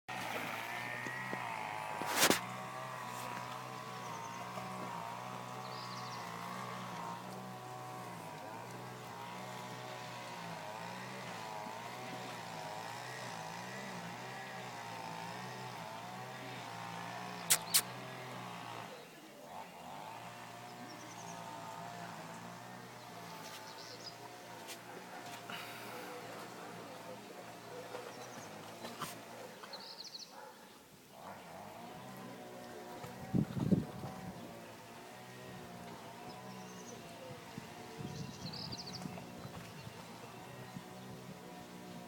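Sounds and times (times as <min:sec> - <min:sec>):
motor humming: 0:00.1 - 0:19.0
sharp click: 0:17.5 - 0:17.9.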